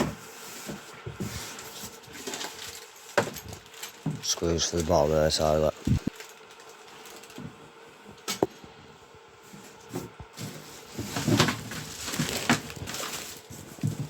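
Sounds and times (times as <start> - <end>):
knocks and rustling of packaging: 0.0 - 4.4, 9.5 - 14.0.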